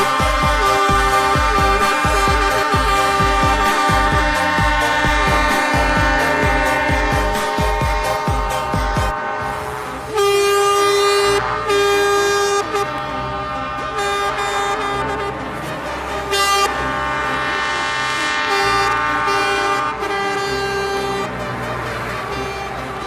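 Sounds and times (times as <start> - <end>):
low engine rumble: 0.0 - 23.0
vehicle horns honking: 0.0 - 23.0.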